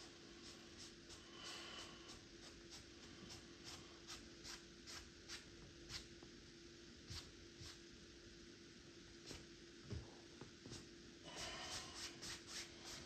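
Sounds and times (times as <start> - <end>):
paintbrush strokes on canvas: 0.0 - 6.1, 10.7 - 13.0
low steady hum: 0.0 - 13.0.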